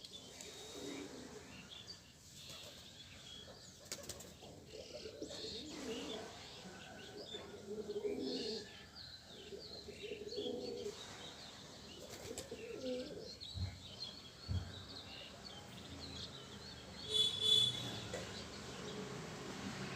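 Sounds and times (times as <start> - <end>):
small birds chirping: 0.0 - 19.2
pigeons cooing: 0.4 - 1.9, 3.8 - 11.2, 11.8 - 14.0.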